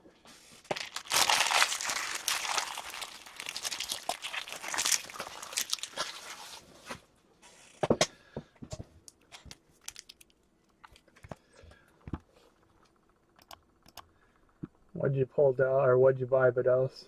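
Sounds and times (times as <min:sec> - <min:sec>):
foil wrapper crinkling: 0:00.6 - 0:06.7, 0:09.3 - 0:11.2.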